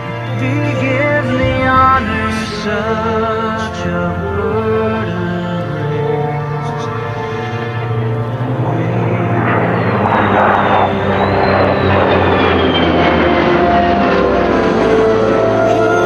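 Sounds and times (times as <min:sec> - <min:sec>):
high whine falling in pitch: 0:00.0 - 0:16.0
jet and propeller plane flyby: 0:00.0 - 0:16.0.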